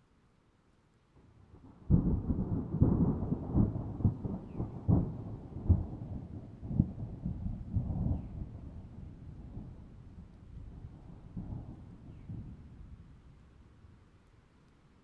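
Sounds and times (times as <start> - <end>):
thunder rumbling and cracking: 1.8 - 13.0.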